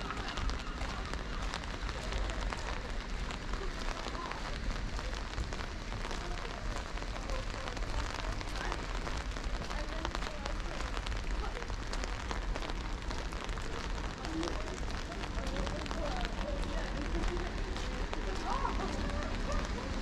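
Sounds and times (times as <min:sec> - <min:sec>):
steady rain: 0:00.0 - 0:20.0.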